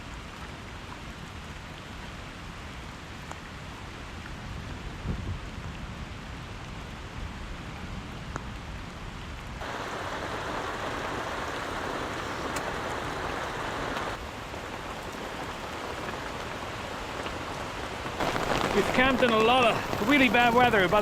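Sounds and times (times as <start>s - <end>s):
wind rumble on microphone: 4.2s - 9.6s
heavy rain falling: 9.6s - 21.0s.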